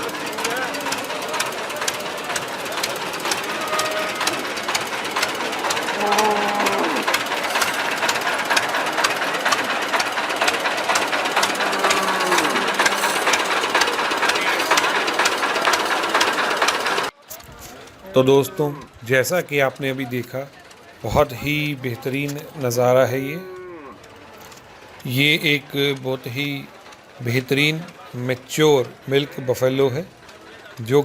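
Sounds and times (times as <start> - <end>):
engine knocking: 0.0 - 17.2, 19.0 - 31.0
drawn-out calls: 1.0 - 16.9
outdoor din: 3.3 - 7.8, 10.1 - 17.6.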